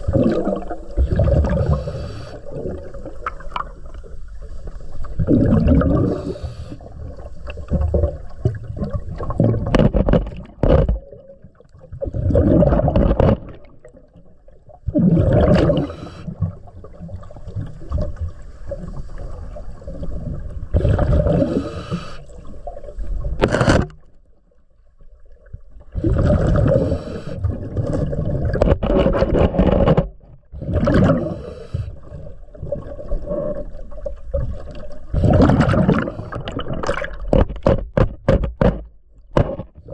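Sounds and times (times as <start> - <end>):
diver exhaling bubbles: 0.0 - 3.7, 5.1 - 9.7, 12.0 - 13.7, 14.9 - 16.7, 19.8 - 23.2, 25.9 - 29.2, 30.6 - 37.3
regulator gurgling and hissing: 20.8 - 22.2.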